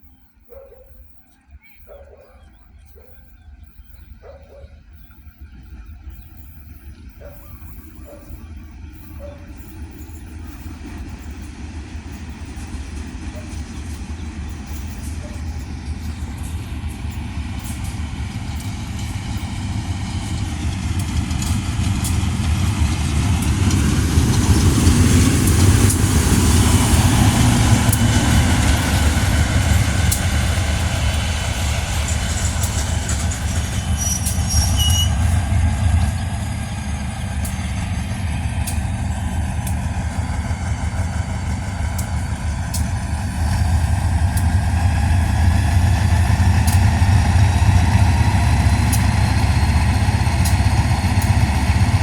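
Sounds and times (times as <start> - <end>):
diesel train engine: 0.0 - 52.0
train wheels on rails: 0.0 - 52.0
brake squeal: 26.5 - 38.4.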